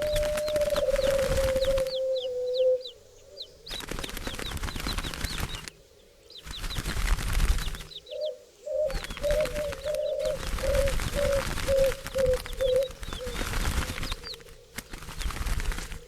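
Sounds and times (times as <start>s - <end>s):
birds wings flapping: 0.0s - 2.0s, 3.7s - 5.8s, 6.4s - 8.0s, 8.8s - 16.0s
dove cooing: 0.0s - 3.6s, 8.0s - 14.8s.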